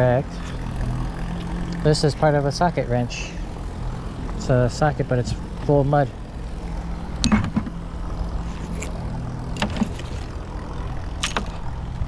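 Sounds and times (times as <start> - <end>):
engine humming: 0.0 - 12.0
sharp clicks and knocks: 7.2 - 7.8, 8.5 - 11.7.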